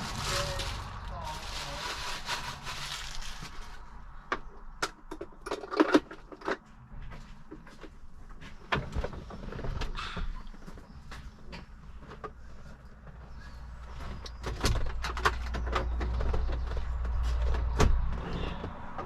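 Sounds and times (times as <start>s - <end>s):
light rustle of packaging: 0.0s - 4.0s.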